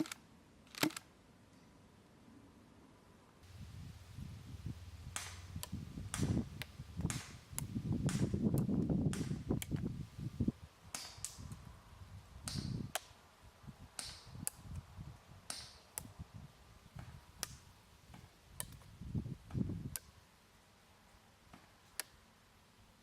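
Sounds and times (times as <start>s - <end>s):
airsoft pistol shots popping: 5.1s - 6.4s, 7.0s - 9.8s.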